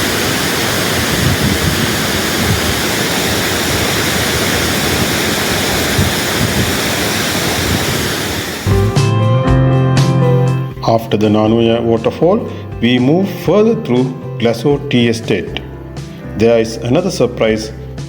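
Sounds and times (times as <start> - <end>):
waterfall rushing over rocks: 0.0 - 8.7.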